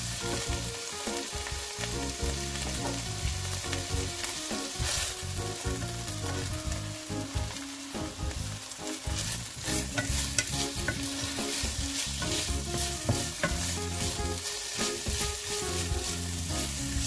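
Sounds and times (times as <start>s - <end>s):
food sizzling in hot oil: 0.0s - 17.0s
wooden spoon scraping pan: 9.1s - 17.0s.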